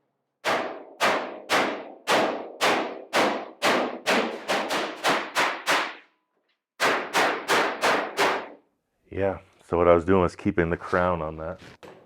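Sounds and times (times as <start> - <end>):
hammer striking sheet metal: 0.4 - 6.1, 6.8 - 8.6.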